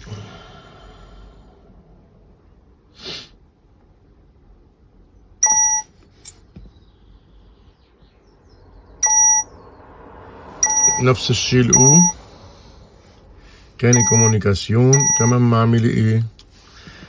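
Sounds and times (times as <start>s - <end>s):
car warning chime beeping: 5.4s - 5.9s, 9.0s - 9.5s, 10.6s - 12.2s, 13.8s - 16.3s.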